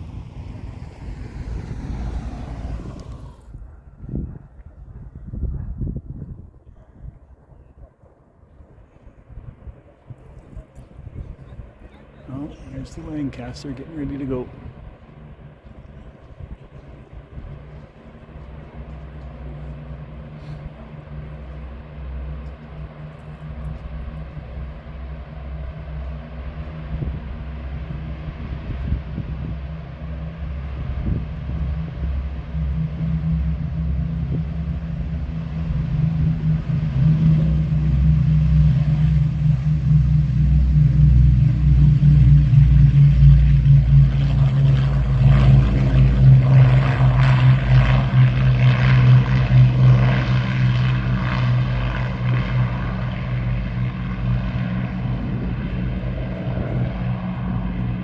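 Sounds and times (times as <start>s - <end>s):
broad rushing noise: 0.0s - 4.3s, 17.5s - 58.0s
propeller engine drone: 0.0s - 58.0s.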